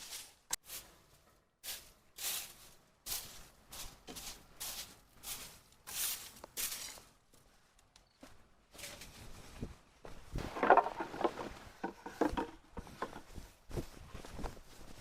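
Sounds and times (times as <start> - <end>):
dry rustling swishes: 8.8 - 15.0.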